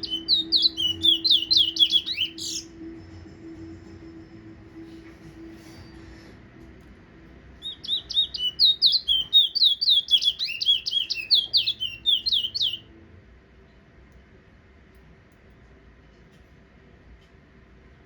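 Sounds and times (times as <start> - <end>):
finch singing whistled song: 0.0 - 2.8, 7.6 - 12.9.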